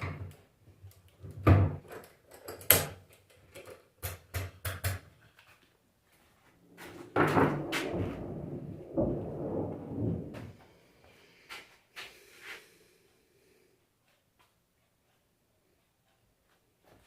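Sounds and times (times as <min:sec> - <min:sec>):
tools knocking and clicking: 0:01.8 - 0:05.5
rough scraping noise: 0:06.6 - 0:11.7.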